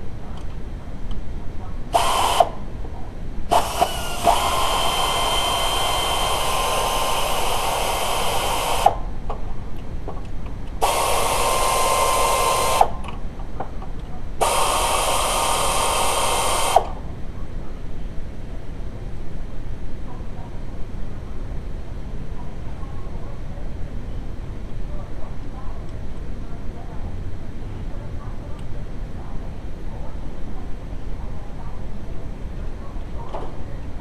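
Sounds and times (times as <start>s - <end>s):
power tool motor whining: 2.0s - 2.6s, 3.5s - 9.0s, 10.8s - 12.9s, 14.4s - 16.9s.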